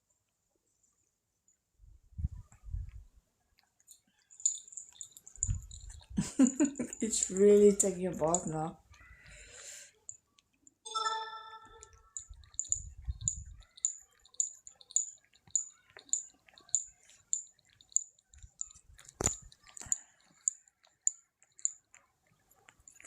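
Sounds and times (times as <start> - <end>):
cat licking: 3.6 - 10.6, 11.8 - 23.0.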